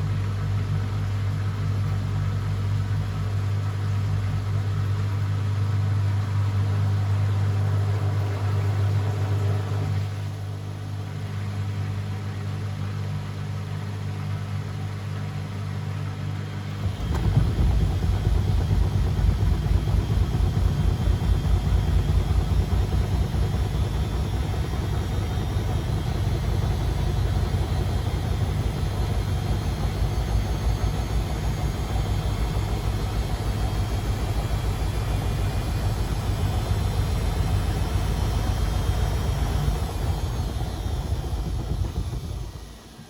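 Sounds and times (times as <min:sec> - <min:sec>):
washing machine hum: 0:00.0 - 0:43.0
washing machine drum rumbling: 0:16.7 - 0:43.0
motor whine rising in pitch: 0:16.8 - 0:43.0.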